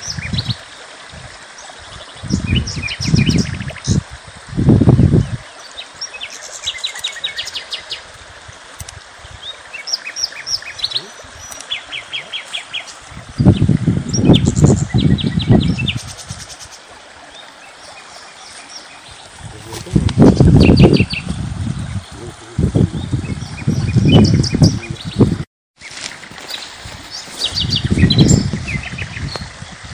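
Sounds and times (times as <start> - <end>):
outdoor hiss: 2.9 - 14.2
small birds chirping: 9.3 - 25.4, 26.4 - 29.6.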